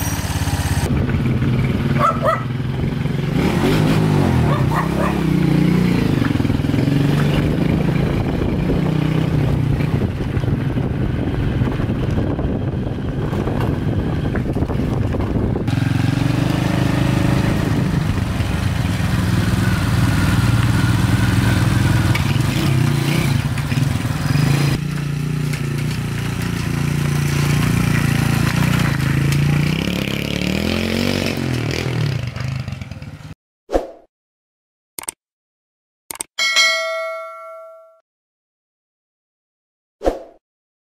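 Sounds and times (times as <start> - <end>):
motorcycle engine running: 0.0 - 30.3.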